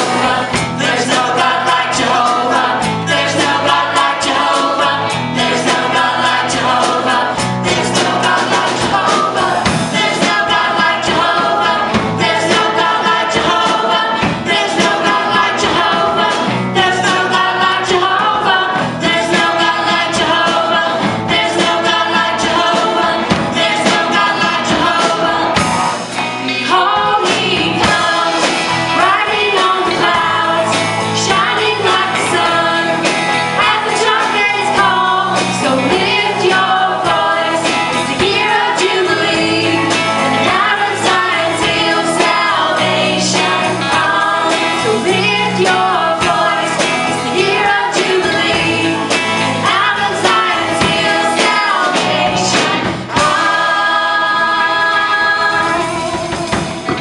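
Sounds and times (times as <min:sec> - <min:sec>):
band accompaniment: 0:00.0 - 0:57.0
drum hits: 0:00.0 - 0:57.0
vocal group singing gospel: 0:00.0 - 0:57.0.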